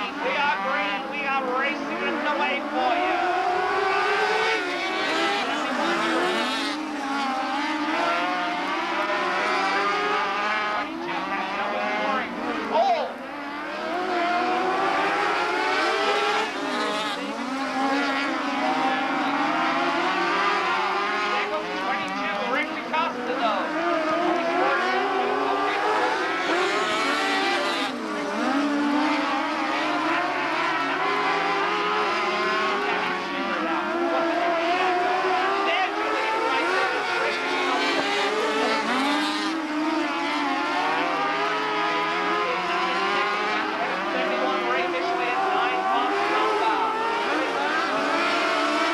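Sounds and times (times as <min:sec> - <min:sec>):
small race car engines: 0:00.0 - 0:48.9.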